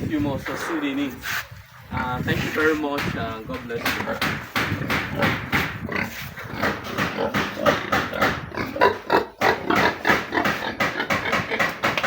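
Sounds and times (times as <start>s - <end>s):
pigs grunting: 3.8s - 11.8s.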